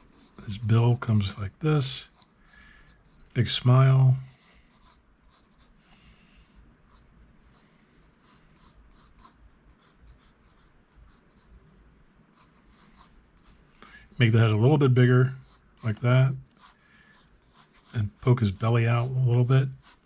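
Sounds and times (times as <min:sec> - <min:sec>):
pencil scratching on paper: 0:00.0 - 0:01.0, 0:03.0 - 0:05.8, 0:06.9 - 0:11.6, 0:12.3 - 0:13.6, 0:15.3 - 0:20.0.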